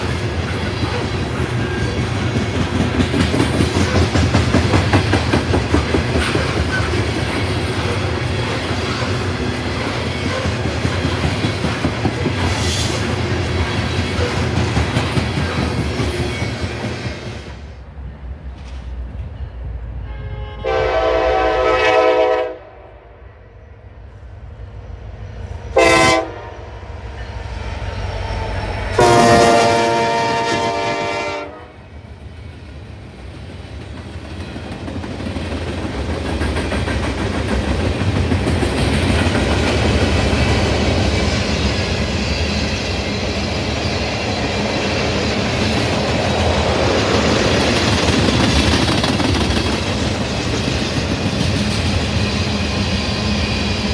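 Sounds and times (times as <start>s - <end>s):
train rumble and wheel clatter: 0.0s - 53.9s
locomotive horn blasts: 20.0s - 22.9s, 25.8s - 26.7s, 29.0s - 31.8s.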